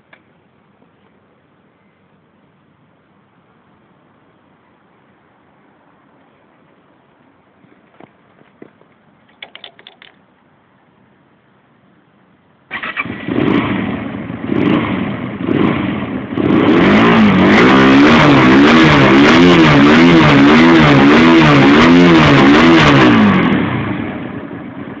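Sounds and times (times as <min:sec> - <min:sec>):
motorcycle engine revving: 0:12.7 - 0:25.0.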